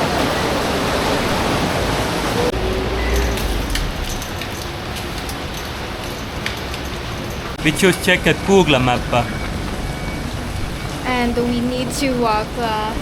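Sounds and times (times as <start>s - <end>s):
steady rain falling: 0.0s - 13.0s
low rumble: 2.5s - 5.6s.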